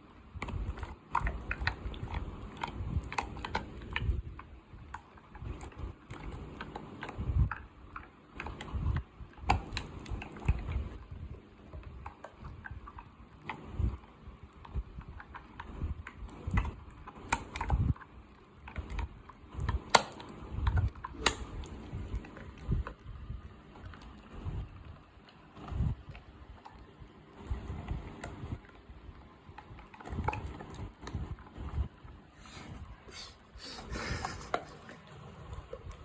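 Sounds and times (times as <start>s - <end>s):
teeth clicking: 0.0s - 28.7s
dog chewing meat: 0.0s - 36.0s.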